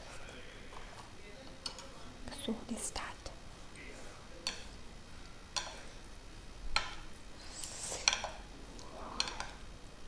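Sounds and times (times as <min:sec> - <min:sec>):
soft hiss: 0:00.0 - 0:10.0
chopsticks clicking against bowl: 0:01.6 - 0:01.9, 0:04.4 - 0:04.8, 0:08.0 - 0:08.4, 0:09.2 - 0:09.6.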